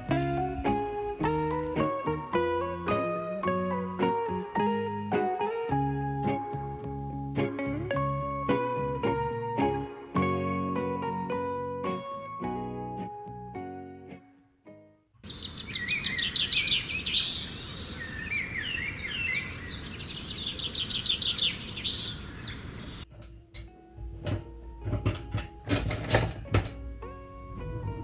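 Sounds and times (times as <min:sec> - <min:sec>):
birds chirping and singing: 0:15.2 - 0:23.1
outdoor background hiss: 0:15.3 - 0:28.0.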